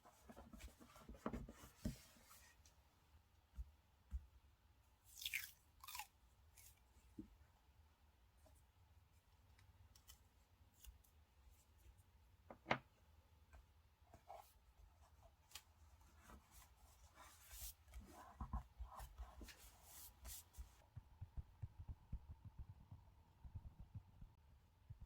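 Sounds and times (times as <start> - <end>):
soft low bumps: 20.7 - 25.0.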